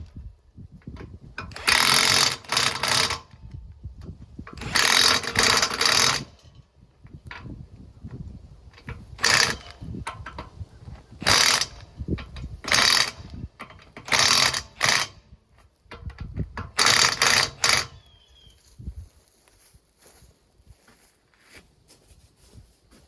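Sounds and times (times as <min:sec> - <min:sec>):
ratchet wrench ratcheting: 0:01.4 - 0:03.6, 0:04.4 - 0:06.6, 0:08.8 - 0:10.5, 0:11.2 - 0:15.3, 0:15.9 - 0:18.2.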